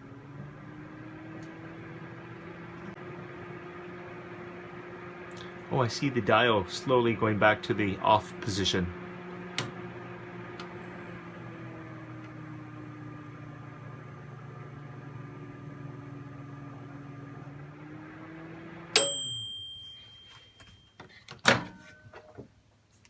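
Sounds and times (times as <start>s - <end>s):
microwave oven humming: 0.0s - 22.2s
clicks: 9.5s - 9.9s
timer bell ding: 19.0s - 21.0s.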